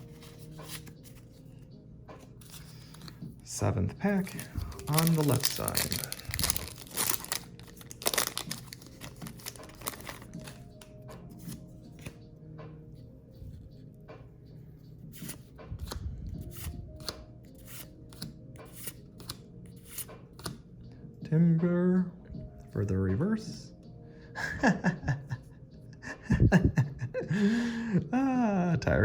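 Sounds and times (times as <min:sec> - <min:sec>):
cards sliding and flicking: 0:00.2 - 0:01.3, 0:15.2 - 0:20.6
foil wrapper tearing and crinkling: 0:04.2 - 0:10.6.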